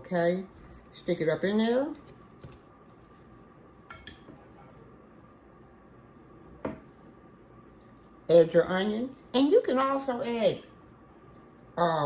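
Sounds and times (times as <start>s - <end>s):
quiet handling sounds: 2.0s - 3.6s.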